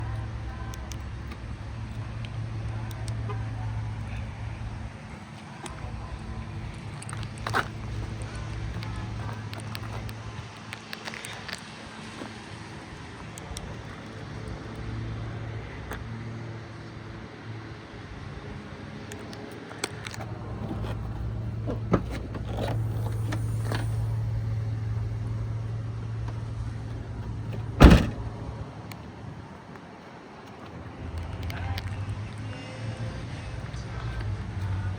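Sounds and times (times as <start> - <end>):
car engine idling: 0.0 - 10.6, 12.5 - 28.6
loud thump: 27.8 - 28.3.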